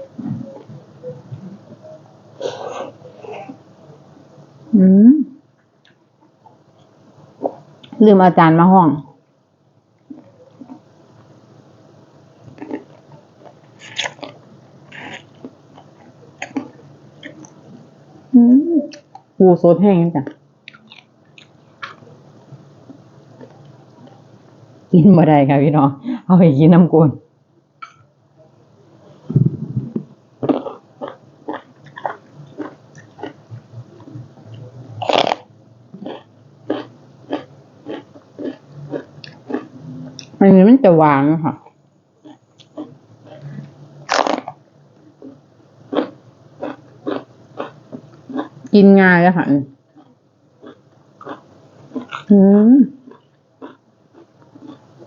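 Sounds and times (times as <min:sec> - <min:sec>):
person chewing and biting food: 0:12.5 - 0:17.6, 0:30.4 - 0:40.4, 0:42.2 - 0:44.6, 0:45.2 - 0:48.6, 0:49.9 - 0:52.3, 0:53.0 - 0:55.0.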